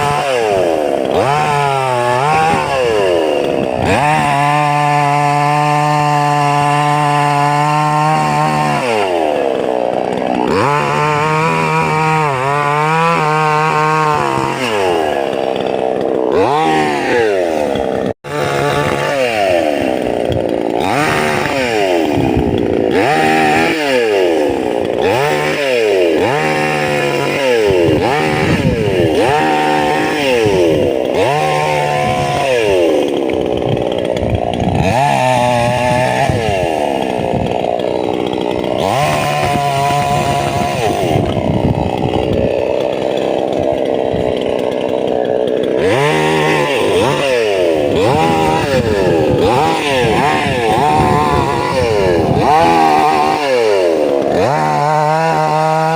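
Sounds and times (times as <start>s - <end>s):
chainsaw revving cutting wood: 0.0s - 55.9s.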